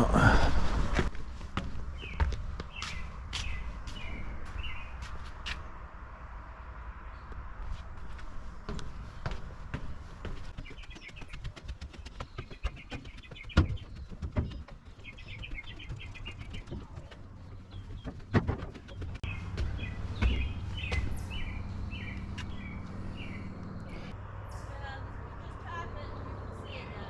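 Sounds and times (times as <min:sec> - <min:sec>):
footsteps climbing stairs: 0:00.2 - 0:05.6, 0:07.6 - 0:24.1
small birds chirping: 0:01.7 - 0:05.6, 0:08.0 - 0:27.0
sharp knocks: 0:10.6 - 0:21.1.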